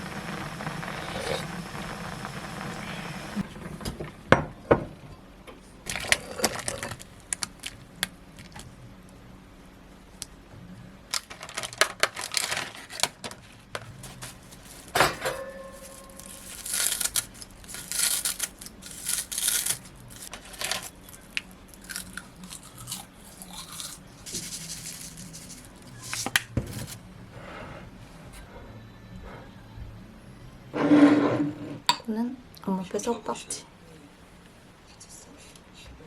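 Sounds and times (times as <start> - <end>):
packaging crinkling and tearing: 11.1 - 15.0, 15.8 - 27.0.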